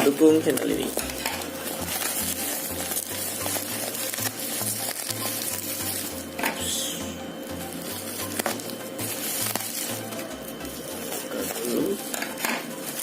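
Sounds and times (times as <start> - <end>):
plastic wrapping crinkling: 0.0 - 13.0
background music with bass line: 0.3 - 12.3.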